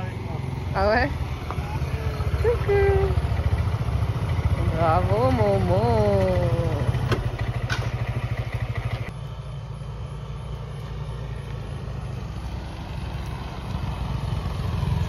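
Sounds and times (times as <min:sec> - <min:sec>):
scooter engine putter: 0:04.4 - 0:09.1.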